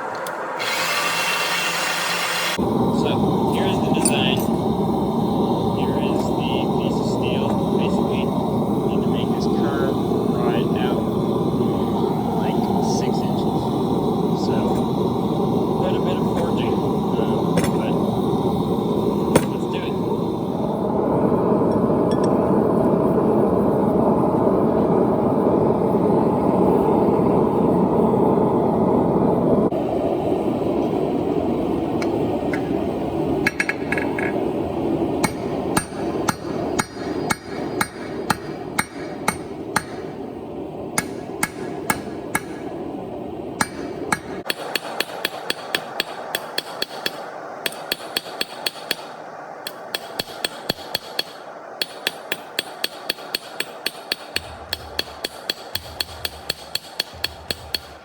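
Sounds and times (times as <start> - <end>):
hammer striking steel on anvil: 17.5 - 18.0, 19.4 - 19.6, 33.4 - 34.4, 35.2 - 40.2, 41.0 - 42.7, 43.6 - 58.0.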